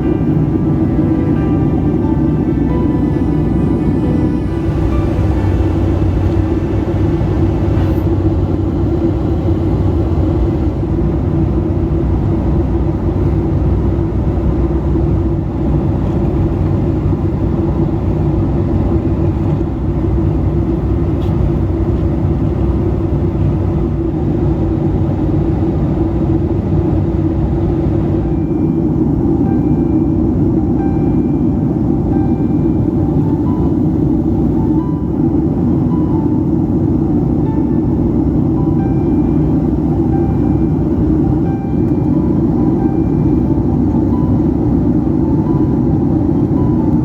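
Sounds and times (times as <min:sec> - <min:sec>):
jet engine cabin roar: 0:00.0 - 0:47.0.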